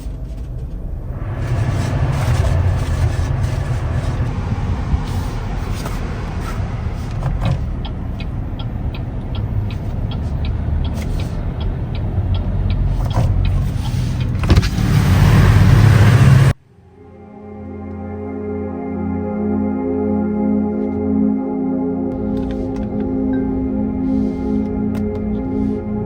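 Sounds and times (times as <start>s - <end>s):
car running noise: 0.0s - 16.6s
evenly spaced ticks: 7.7s - 14.3s
soft ambient music: 16.6s - 26.0s.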